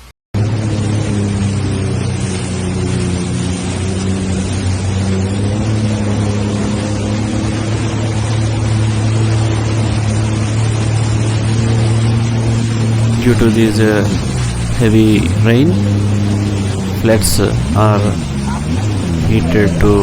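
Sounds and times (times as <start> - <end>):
engine humming: 0.4 - 20.0
wind: 0.4 - 20.0
heavy rain: 11.6 - 20.0.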